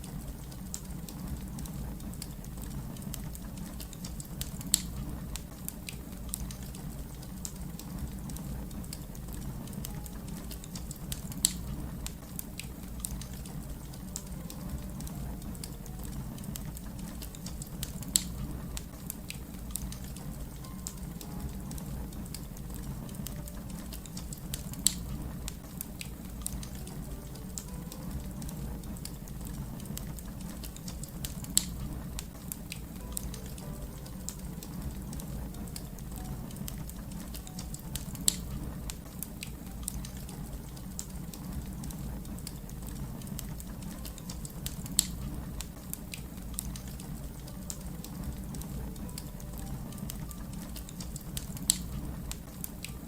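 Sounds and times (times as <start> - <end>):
fire crackling: 0.0 - 53.0
sharp pops from fire: 0.4 - 49.3, 49.9 - 53.0
low rumble: 6.2 - 20.7, 21.4 - 39.1.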